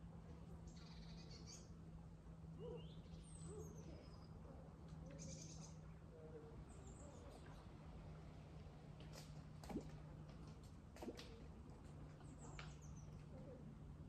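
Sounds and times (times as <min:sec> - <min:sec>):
steady low hum: 0:00.0 - 0:14.0
bird calls: 0:00.7 - 0:01.7, 0:02.6 - 0:04.4, 0:05.0 - 0:07.7.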